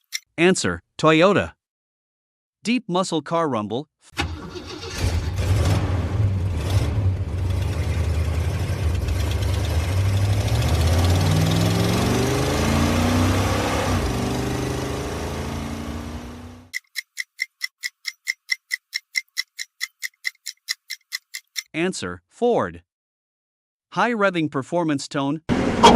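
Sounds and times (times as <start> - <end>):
car engine rumbling and revving: 4.2 - 16.7, 25.5 - 25.9
countdown timer ticking rapidly: 16.7 - 21.7.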